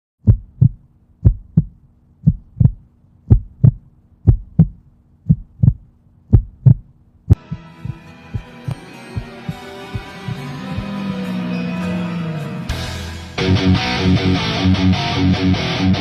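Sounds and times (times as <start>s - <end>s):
faint steady hum: 0.2s - 8.0s
heartbeat thumps: 0.2s - 11.0s
music: 7.3s - 16.0s.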